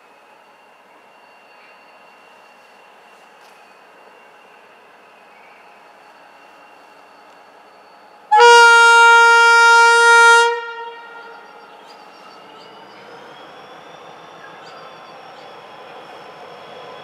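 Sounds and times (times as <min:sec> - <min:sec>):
train rumbling through station: 0:00.0 - 0:17.0
train horn: 0:08.3 - 0:11.6.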